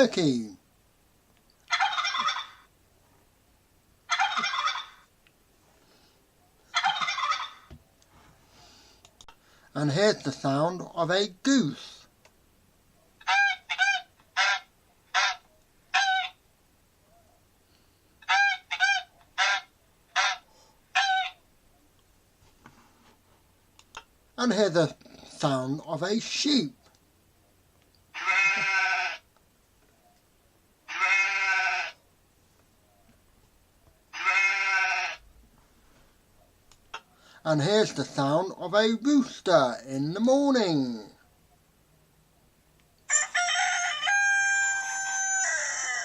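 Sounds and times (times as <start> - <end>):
turkey gobbling: 1.7 - 2.7, 4.1 - 5.1, 6.7 - 7.7, 13.2 - 16.4, 18.2 - 21.4
goose honking: 18.2 - 20.4.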